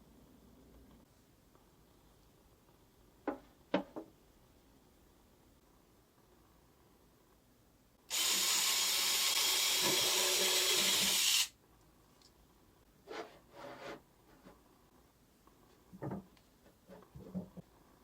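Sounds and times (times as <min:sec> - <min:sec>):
loud steady hiss of air: 0:08.0 - 0:11.6
faint rubbing or scraping: 0:13.0 - 0:14.8.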